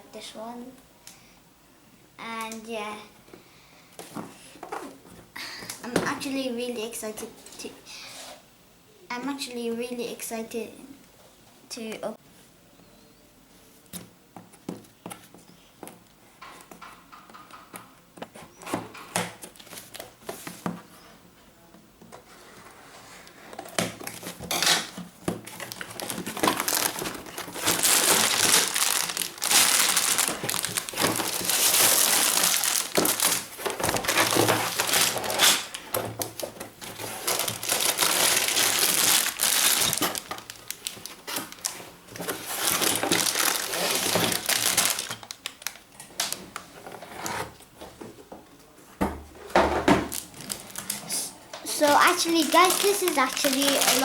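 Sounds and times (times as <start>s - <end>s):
packaging rustling and clicking: 16.7s - 20.9s, 23.2s - 48.0s, 49.9s - 54.0s
plastic and cardboard crinkling: 18.2s - 21.0s, 22.1s - 48.2s, 49.4s - 54.0s.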